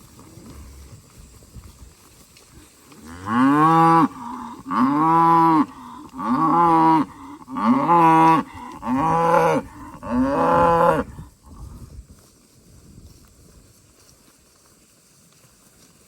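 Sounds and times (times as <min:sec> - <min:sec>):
cattle mooing: 0:03.1 - 0:11.1.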